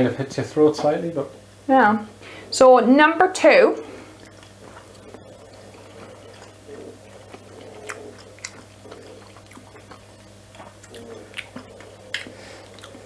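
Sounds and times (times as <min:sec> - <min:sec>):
faint low hum: 0:00.0 - 0:13.0
people chewing food: 0:03.4 - 0:13.0
wet mouth clicks: 0:04.2 - 0:13.0.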